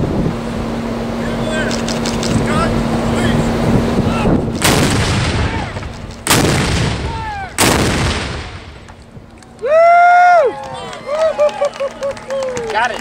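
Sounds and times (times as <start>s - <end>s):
cannons firing: 4.5s - 9.0s
person whooping: 7.1s - 7.6s, 9.6s - 12.7s.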